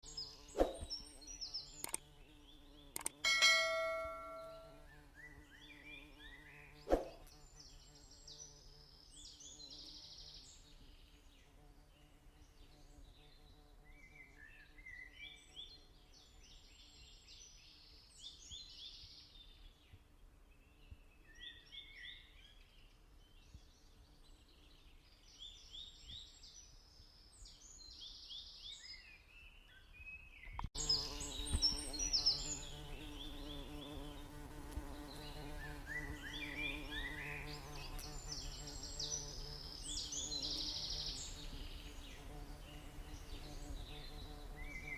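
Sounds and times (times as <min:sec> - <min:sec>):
lovebird chirping: 0:00.2 - 0:05.4, 0:30.4 - 0:34.4, 0:35.1 - 0:41.6
sharp click: 0:01.8 - 0:02.0, 0:02.9 - 0:03.2.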